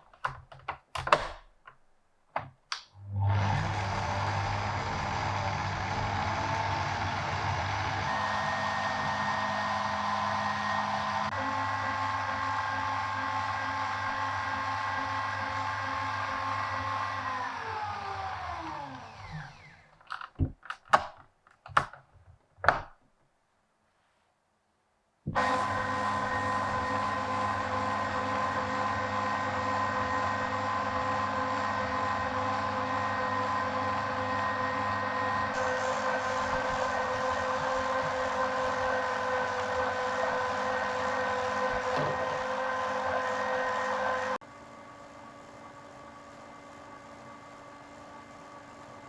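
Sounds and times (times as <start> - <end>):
sharp clicks and knocks: 0.0 - 2.9, 20.0 - 23.0
electric motor whine spinning down: 3.0 - 19.9, 25.4 - 44.4
small electric motor whining: 17.2 - 20.0.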